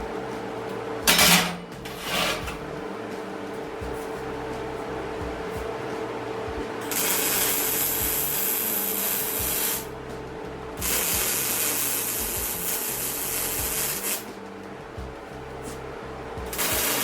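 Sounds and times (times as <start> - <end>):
arc welding hiss: 6.8 - 10.0, 10.8 - 14.5, 16.4 - 17.0.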